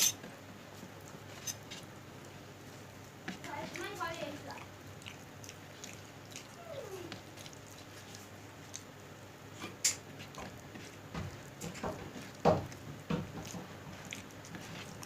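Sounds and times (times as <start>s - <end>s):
cat crying: 6.5s - 7.2s.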